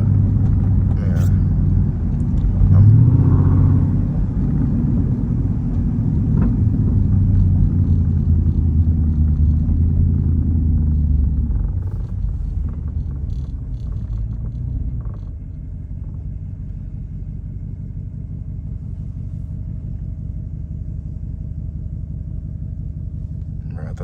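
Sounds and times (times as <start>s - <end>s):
car engine droning: 0.0s - 24.0s.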